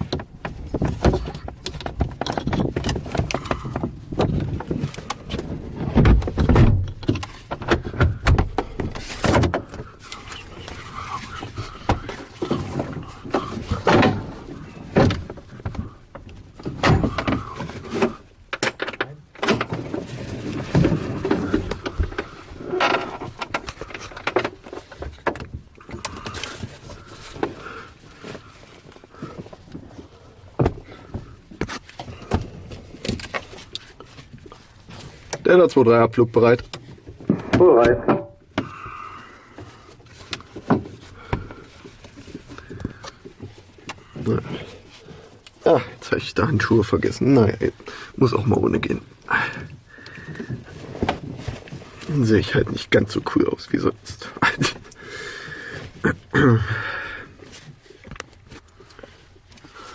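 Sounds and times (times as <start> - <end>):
sharp knocks and clunks: 0.0 - 9.9, 11.4 - 26.7, 30.5 - 33.5, 36.4 - 38.8.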